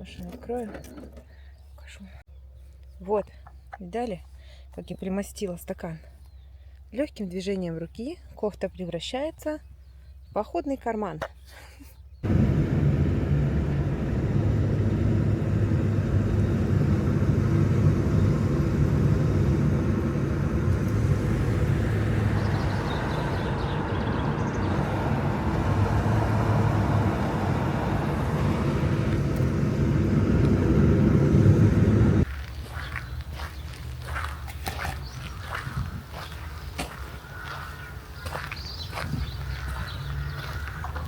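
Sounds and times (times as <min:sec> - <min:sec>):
road noise: 0:12.1 - 0:41.0
car engine hum: 0:12.2 - 0:32.3.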